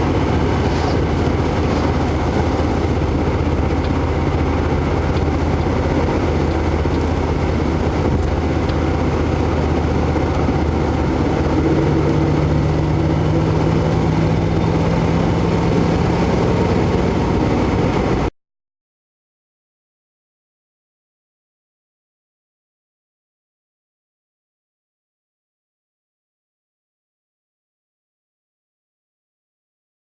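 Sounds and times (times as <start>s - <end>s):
car engine running: 0.0s - 18.3s.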